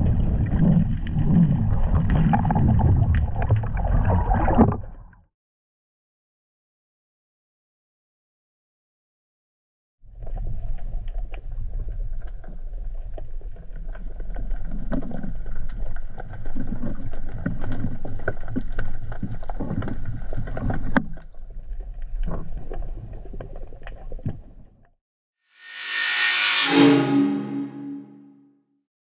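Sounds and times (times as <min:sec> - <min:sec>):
underwater rumble of moving water: 0:00.0 - 0:05.2, 0:10.1 - 0:24.8.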